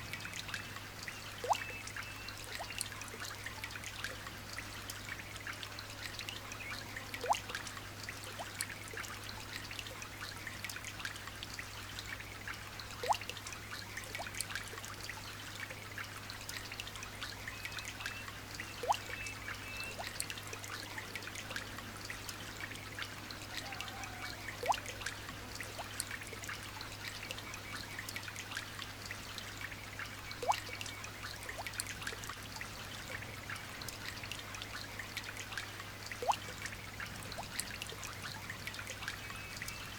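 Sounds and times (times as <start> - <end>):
light rain pattering: 0.0 - 39.9
faint bird chirps: 17.4 - 20.2.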